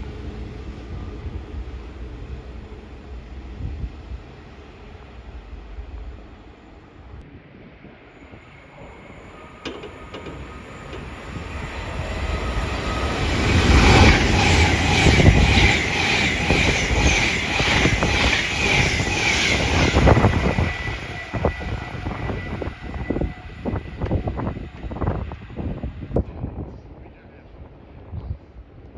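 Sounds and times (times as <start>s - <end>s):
train passing: 0.0s - 26.2s
wheels clattering over rail joints: 9.4s - 18.2s.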